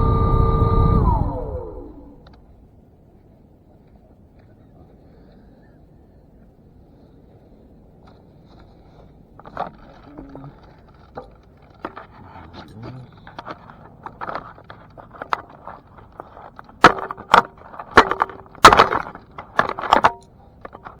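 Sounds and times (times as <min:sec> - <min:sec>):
sharp knocks and scrapes: 0:08.1 - 0:21.0
handling clicks and knocks: 0:09.4 - 0:21.0.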